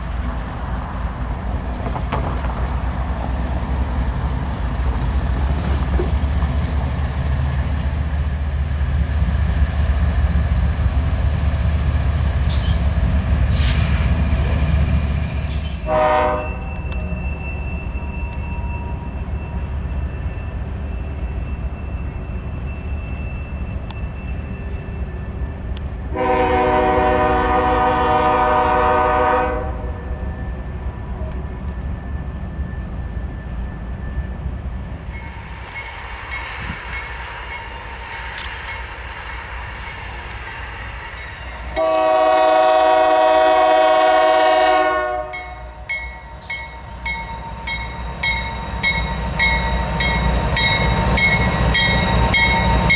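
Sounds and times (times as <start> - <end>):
diesel locomotive rumbling: 0.0 - 52.9
locomotive air horn blasts: 15.8 - 17.2, 26.1 - 30.3, 41.6 - 45.9.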